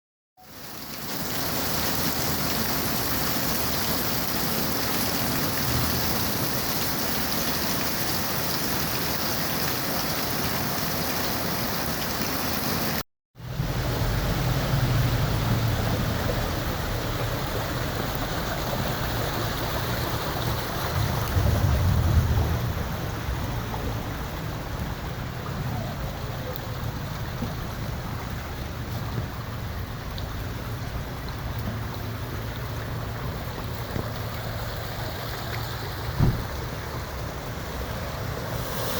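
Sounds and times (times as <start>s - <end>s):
water noise: 0.4s - 38.9s.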